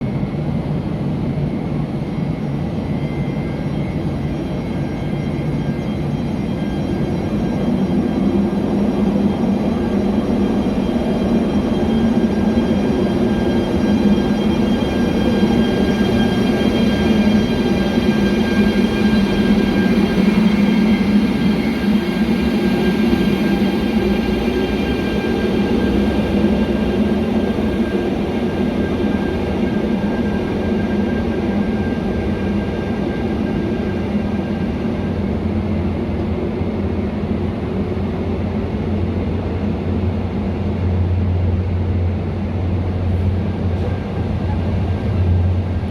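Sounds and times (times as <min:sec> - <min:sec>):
electric train rumbling on track: 0:00.0 - 0:45.9.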